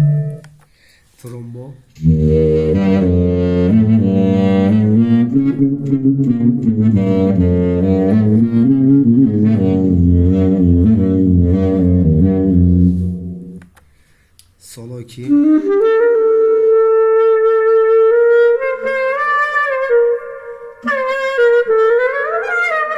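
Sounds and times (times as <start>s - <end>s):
trombone-like bass notes: 0.0s - 0.4s, 2.0s - 13.6s.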